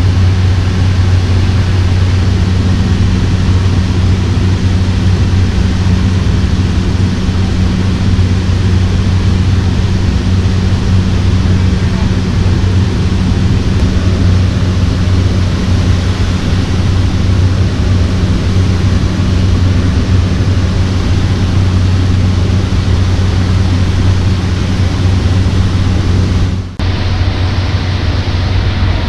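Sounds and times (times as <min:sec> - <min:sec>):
propeller rush of noise: 0:00.0 - 0:29.0
turboprop engine deep hum: 0:00.0 - 0:29.0.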